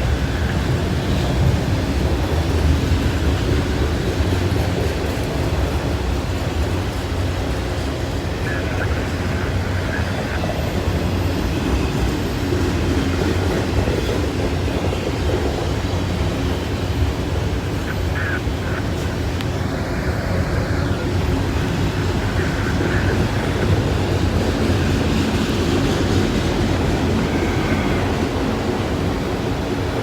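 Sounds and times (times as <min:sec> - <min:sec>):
faint clickety-clack: 0:00.0 - 0:30.0
train wheels rumbling on rail: 0:00.0 - 0:30.0.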